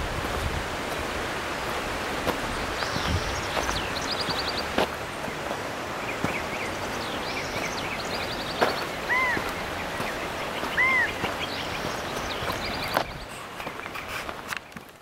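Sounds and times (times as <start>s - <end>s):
footsteps on dirt trail: 0.0s - 15.0s
steady rushing noise: 0.0s - 15.0s
bird trilling high notes: 10.7s - 11.2s
bird whistled notes: 10.7s - 11.2s.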